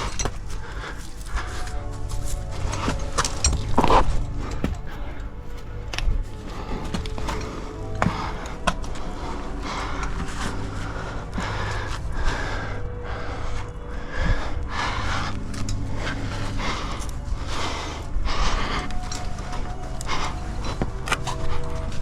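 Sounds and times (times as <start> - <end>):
person breathing heavily: 0.0 - 22.0.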